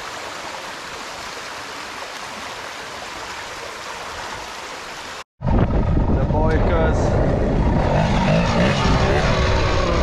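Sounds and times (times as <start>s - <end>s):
stream water rushing over rocks: 0.0s - 5.3s.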